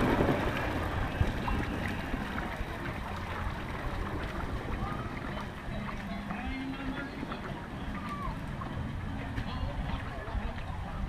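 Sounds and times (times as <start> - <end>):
faint voices: 0.0 - 11.0
water rushing and splashing: 0.0 - 11.0.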